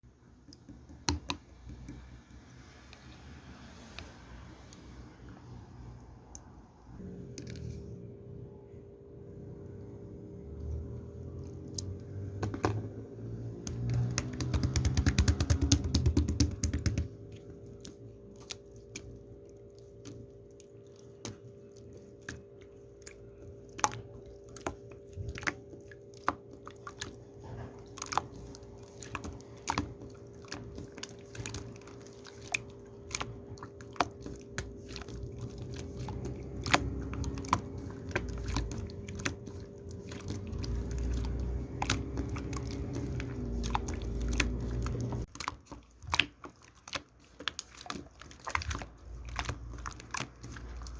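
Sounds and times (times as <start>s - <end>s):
low electrical hum: 0.0s - 50.9s
sharp clicks and crunchy taps: 13.6s - 17.1s.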